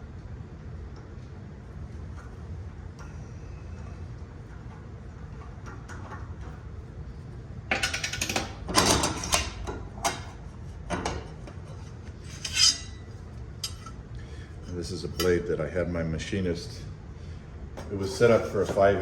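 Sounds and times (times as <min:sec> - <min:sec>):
saw blades clinking and scraping: 0:12.2 - 0:14.0.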